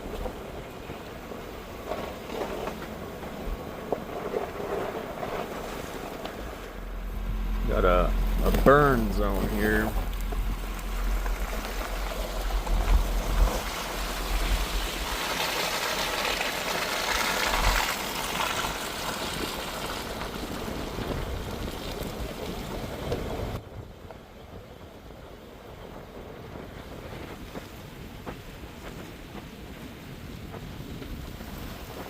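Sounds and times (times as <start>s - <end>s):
pickup truck driving: 0.0s - 23.6s
wind buffeting microphone: 0.0s - 32.0s.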